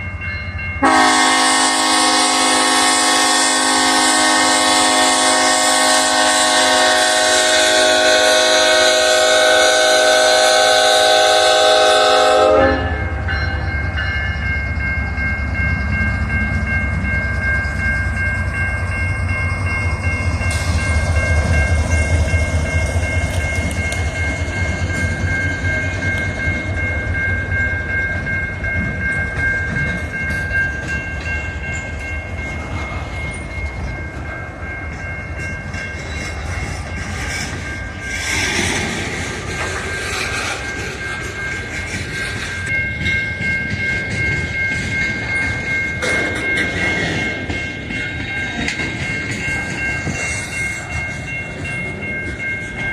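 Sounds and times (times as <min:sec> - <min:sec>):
train rumbling past: 0:00.0 - 0:52.9
train horn chord: 0:00.8 - 0:13.2
train wheels clickety-clack: 0:13.6 - 0:52.9.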